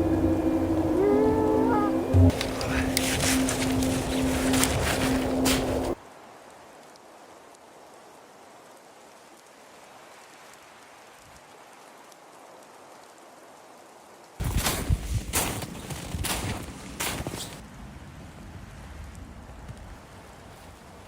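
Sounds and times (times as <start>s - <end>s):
loud sound: 0.0s - 6.0s
faint steady hiss: 0.0s - 21.0s.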